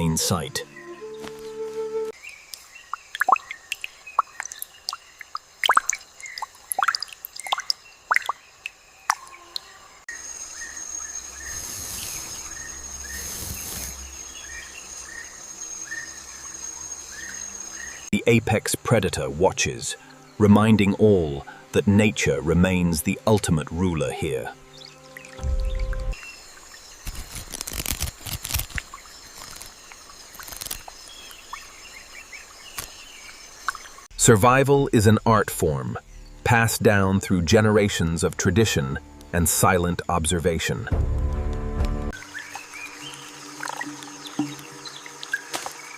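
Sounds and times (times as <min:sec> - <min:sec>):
insect chirping calls: 0:00.0 - 0:20.4, 0:24.6 - 0:34.1, 0:42.2 - 0:45.9
insect high-pitched whine: 0:08.3 - 0:18.1, 0:42.2 - 0:45.9
brief hissing: 0:11.4 - 0:14.2.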